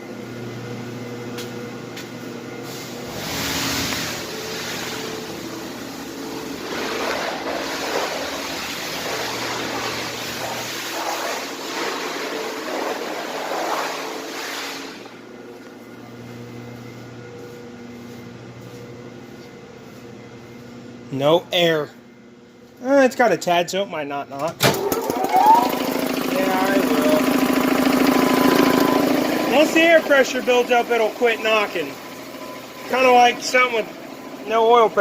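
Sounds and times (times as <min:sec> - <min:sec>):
pressure washer engine running: 0:02.7 - 0:15.1, 0:24.7 - 0:35.0
pressure washer spraying water: 0:02.7 - 0:15.1, 0:25.2 - 0:34.2.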